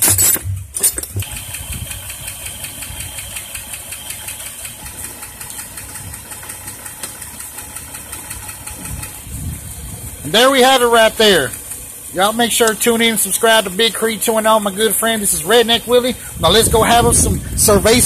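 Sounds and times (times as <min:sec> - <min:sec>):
metal tool clinks: 0:00.0 - 0:01.2
car engine idling: 0:00.0 - 0:18.0.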